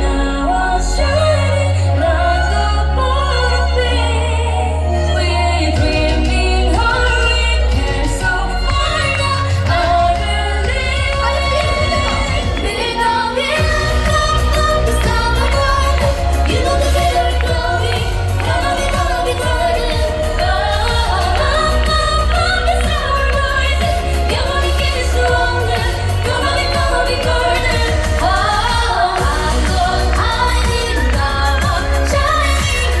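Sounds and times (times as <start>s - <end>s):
instrumental backing with low bass: 0.0s - 33.0s
traditional-style singing: 0.0s - 33.0s.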